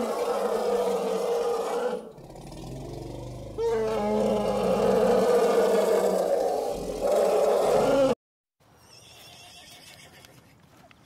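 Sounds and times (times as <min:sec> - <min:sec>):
elephant low rumble: 0:02.1 - 0:08.2
elephant trumpeting: 0:03.5 - 0:08.2.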